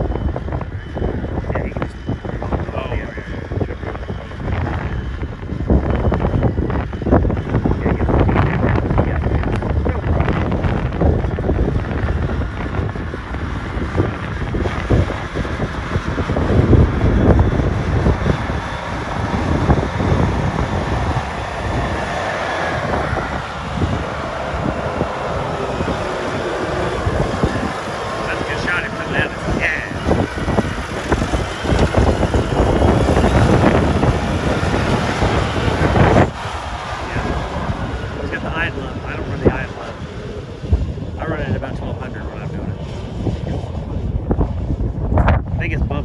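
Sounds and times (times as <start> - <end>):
wind buffeting microphone: 0.0 - 46.0
vehicle engine running: 0.6 - 45.7.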